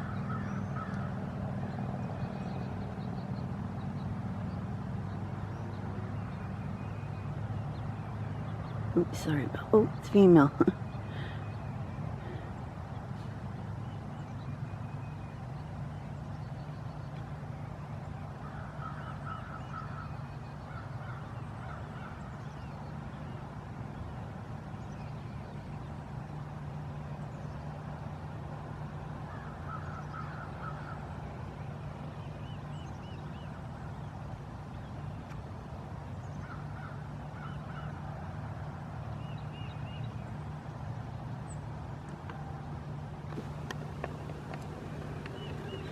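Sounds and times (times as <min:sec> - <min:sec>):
steady low hum: 0:43.3 - 0:45.9
bird calling rapid notes: 0:43.4 - 0:45.9.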